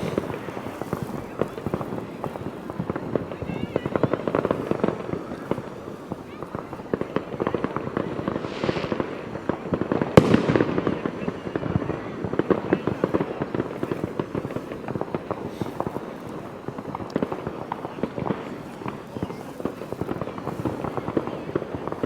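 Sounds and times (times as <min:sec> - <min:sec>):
fireworks crackling and popping: 0:00.0 - 0:22.0
firework bang: 0:07.9 - 0:13.2.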